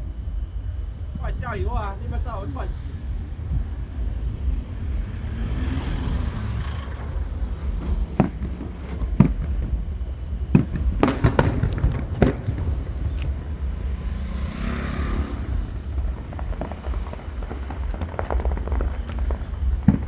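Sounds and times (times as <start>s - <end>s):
fireworks bangs: 0.0s - 20.0s
fireworks hissing crackle: 0.0s - 20.0s.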